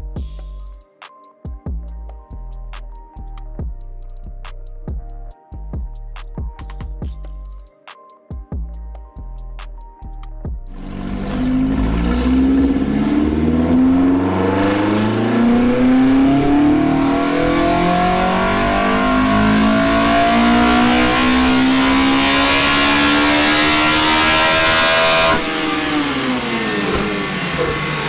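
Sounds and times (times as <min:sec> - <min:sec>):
engine revving at full throttle: 0:10.8 - 0:28.0.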